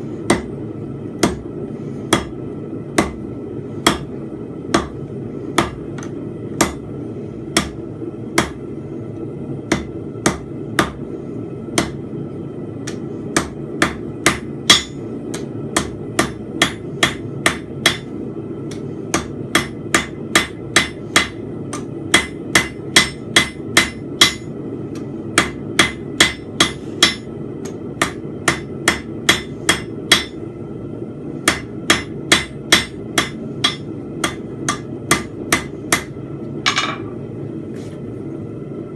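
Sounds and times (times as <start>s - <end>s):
hammer striking steel on anvil: 1.2s - 1.5s, 3.8s - 4.1s, 5.6s - 6.8s, 8.4s - 8.6s, 9.7s - 11.0s, 12.9s - 18.1s, 18.7s - 24.5s, 25.4s - 30.4s, 31.4s - 37.2s.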